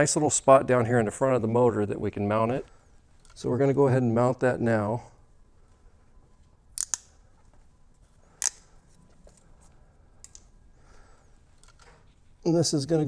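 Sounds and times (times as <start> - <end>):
small parts clicking: 3.2 - 3.4, 6.7 - 7.5, 8.3 - 9.4, 10.2 - 10.6, 11.5 - 12.1.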